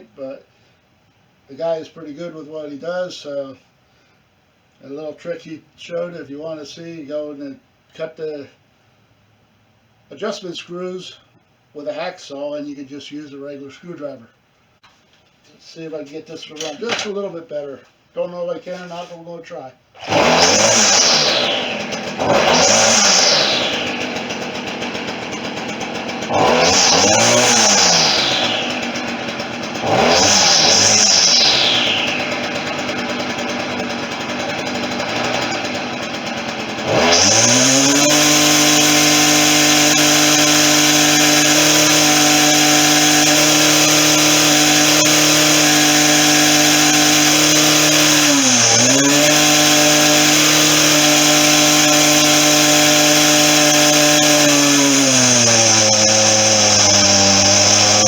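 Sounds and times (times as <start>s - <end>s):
string trimmer engine revving: 20.0s - 58.0s.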